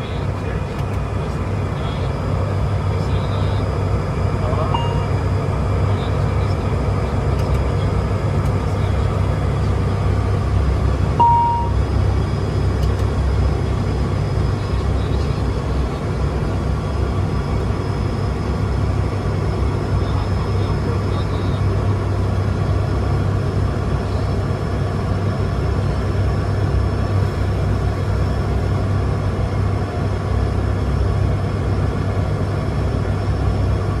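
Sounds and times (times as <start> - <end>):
turboprop engines droning: 0.0 - 34.0
short tone: 4.8 - 5.2, 11.2 - 11.8.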